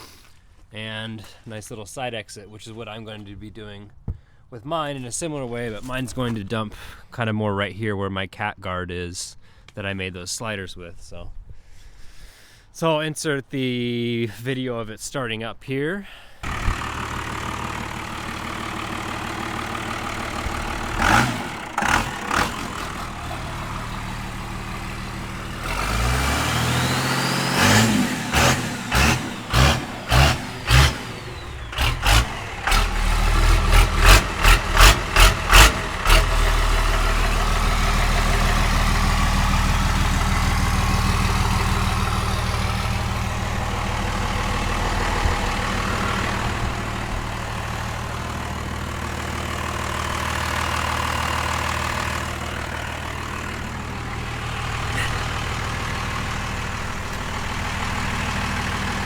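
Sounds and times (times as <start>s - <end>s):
diesel engine idling: 16.4s - 59.0s
diesel engine starting: 16.4s - 59.0s
engine revving throttle blips: 16.4s - 59.0s.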